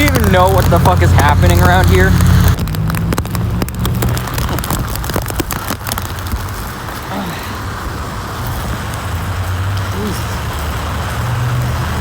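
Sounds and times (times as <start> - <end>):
crackle of sharp taps: 0.0 - 7.0
wind and rain buffeting microphone: 0.0 - 12.0.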